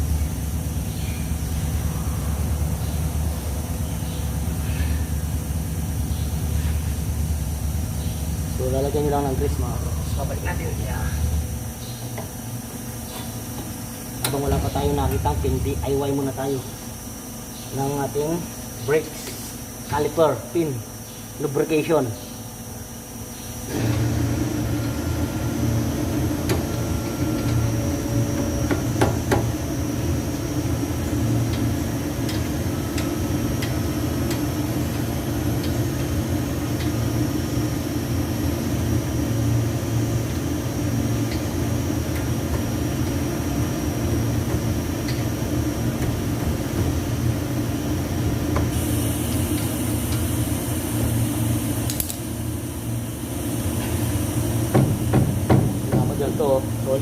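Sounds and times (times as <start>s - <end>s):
loud mechanical hum: 0.0s - 57.0s.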